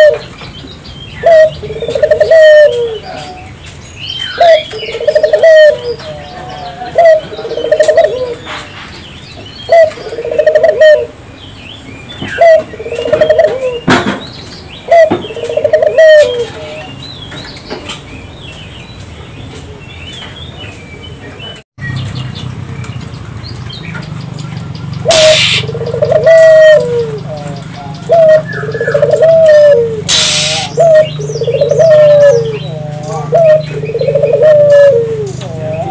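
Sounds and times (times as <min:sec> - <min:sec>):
dove cooing: 0:00.0 - 0:00.3, 0:01.2 - 0:03.5, 0:04.4 - 0:08.6, 0:09.7 - 0:11.2, 0:12.3 - 0:13.9, 0:14.9 - 0:16.9, 0:25.0 - 0:35.9
small birds chirping: 0:00.0 - 0:35.9
loud rushing burst: 0:25.1 - 0:25.7, 0:30.1 - 0:30.9.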